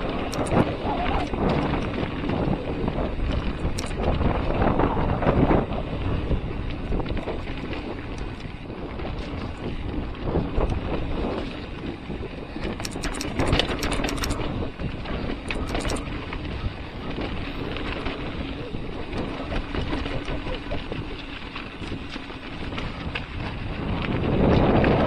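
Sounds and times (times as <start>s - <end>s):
bike rattling: 0.0s - 25.0s
bike tyres rolling on dirt: 0.0s - 25.0s
wind rushing over microphone: 0.0s - 25.0s
sharp clattering: 12.8s - 14.5s.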